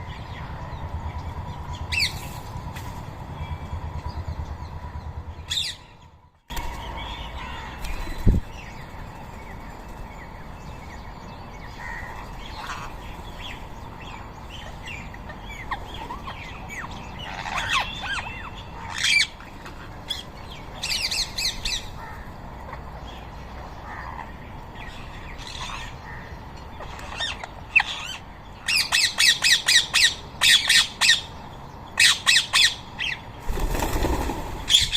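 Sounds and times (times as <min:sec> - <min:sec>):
parakeets squawking: 0:11.7 - 0:13.6, 0:14.6 - 0:22.8, 0:23.8 - 0:31.3, 0:32.0 - 0:34.9.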